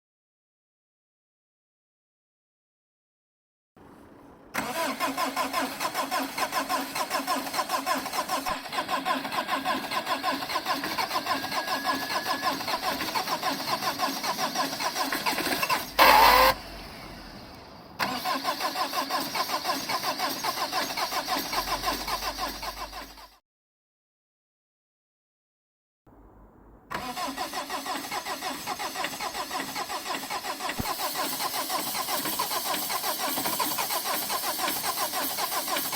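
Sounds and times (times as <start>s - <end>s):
starter motor cranking engine: 4.6s - 23.4s, 26.9s - 35.9s.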